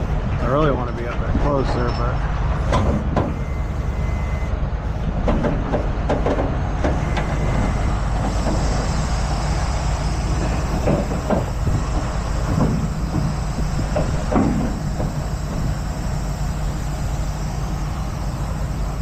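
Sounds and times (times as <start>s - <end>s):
truck engine running: 0.0s - 19.0s
metallic clanks and knocks: 5.2s - 7.3s
hiss: 8.0s - 19.0s.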